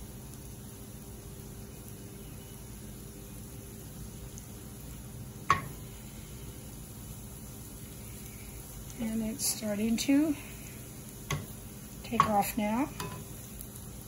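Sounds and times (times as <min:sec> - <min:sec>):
mushrooms sizzling in butter: 0:00.0 - 0:14.0
spatula knocking on pan: 0:05.5 - 0:05.8, 0:11.3 - 0:11.5, 0:12.1 - 0:13.3.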